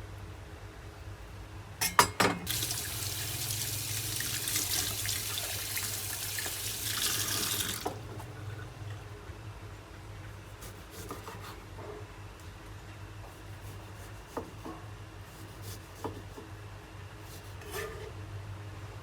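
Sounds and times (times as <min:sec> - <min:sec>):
rubbing and scraping in kitchen: 0:17.2 - 0:18.2.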